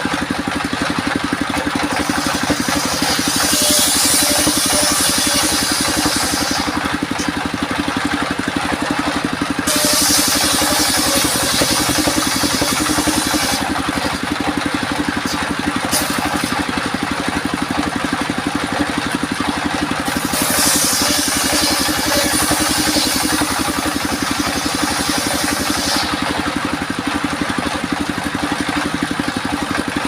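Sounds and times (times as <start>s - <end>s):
sawmill engine pulsing: 0.0s - 30.0s
saw blade hissing through wood: 1.3s - 16.8s, 20.0s - 26.8s.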